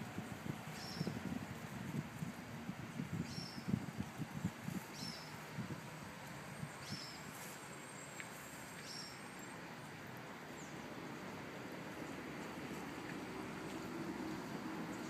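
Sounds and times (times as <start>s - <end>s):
outdoor hiss: 4.6s - 14.9s.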